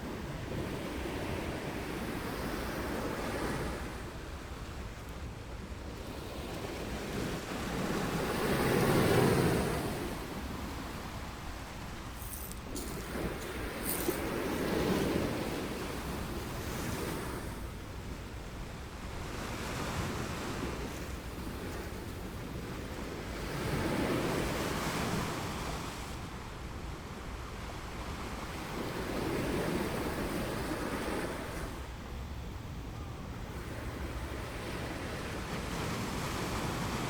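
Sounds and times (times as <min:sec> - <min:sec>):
waves breaking on beach: 0:05.8 - 0:26.3.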